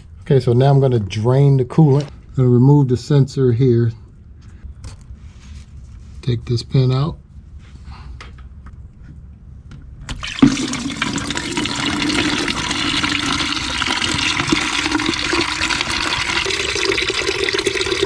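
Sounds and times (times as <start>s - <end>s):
coolant pouring and splashing: 10.2s - 18.0s.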